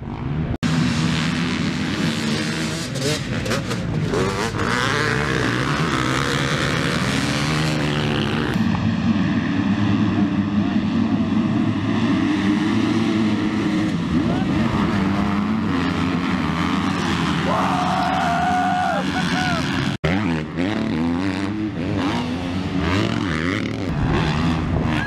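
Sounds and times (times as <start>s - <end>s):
dirt bike engines droning: 0.0s - 25.0s.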